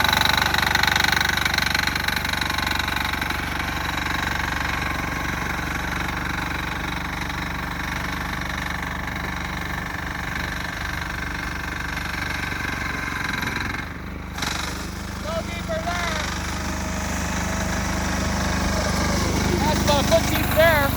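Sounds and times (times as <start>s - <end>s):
diesel tractor engine running: 0.0s - 20.9s.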